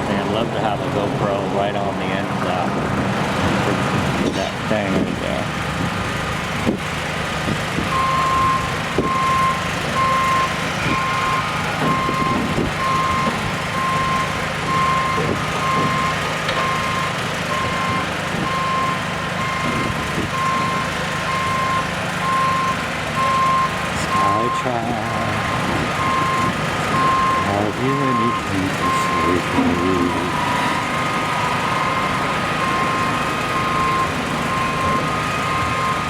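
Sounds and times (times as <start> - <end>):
diesel engine running: 0.0 - 36.0
back-up alarm beeping: 7.9 - 36.0.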